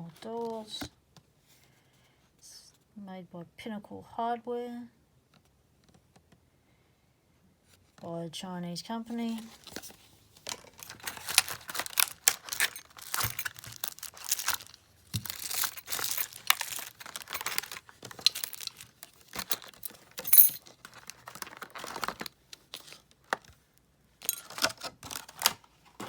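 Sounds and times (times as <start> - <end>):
packaging crinkling and tearing: 9.5 - 22.8, 24.4 - 26.0.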